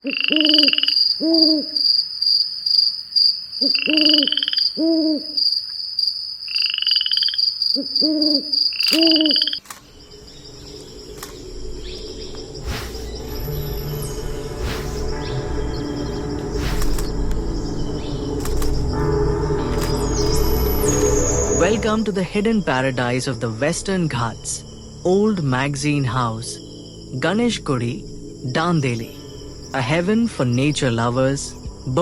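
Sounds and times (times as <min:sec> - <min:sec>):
bird low hoots: 0:00.0 - 0:01.8, 0:03.6 - 0:05.4, 0:07.8 - 0:09.6
high insect whine: 0:00.0 - 0:32.0
music: 0:09.8 - 0:32.0
rising buzzy bird call: 0:10.3 - 0:21.8.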